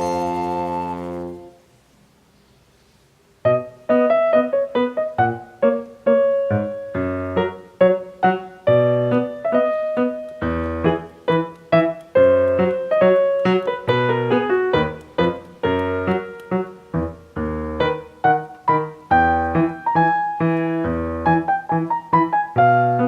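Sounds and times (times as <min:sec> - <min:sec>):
piano music: 0:00.0 - 0:01.6, 0:03.5 - 0:23.0.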